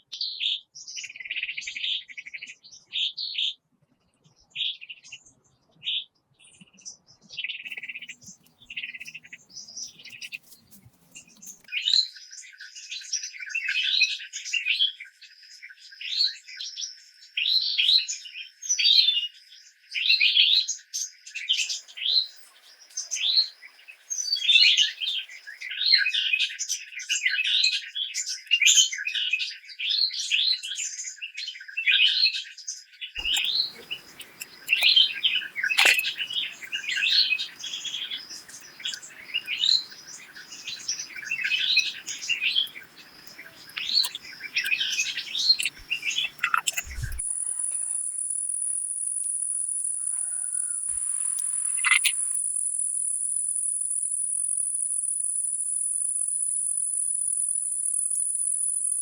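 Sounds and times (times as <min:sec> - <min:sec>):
birds chirping: 0:07.7 - 0:12.0, 0:21.6 - 0:25.8, 0:33.2 - 0:48.6, 0:49.5 - 0:52.4
thin steady high tone: 0:33.2 - 0:59.0.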